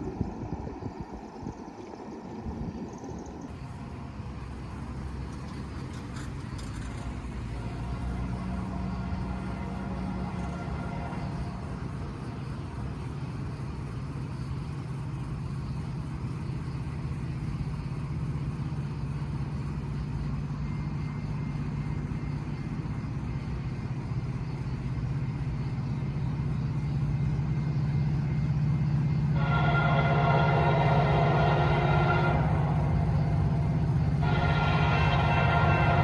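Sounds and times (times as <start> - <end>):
diesel locomotive engine drone: 0.0 - 36.0
locomotive horn: 7.5 - 12.0, 29.3 - 36.0.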